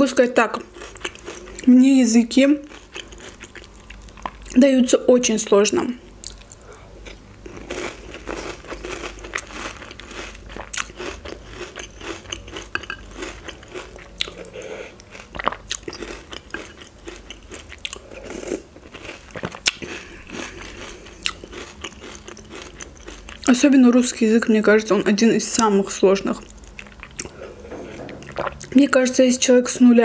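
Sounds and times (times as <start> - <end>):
crunching and chewing cereal: 0.5 - 1.7, 2.6 - 4.6, 6.2 - 23.6, 26.3 - 28.8.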